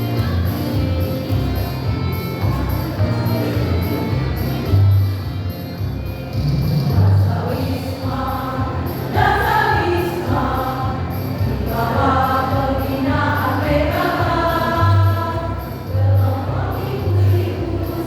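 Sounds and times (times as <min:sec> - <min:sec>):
choir singing in parts: 0:06.8 - 0:18.0.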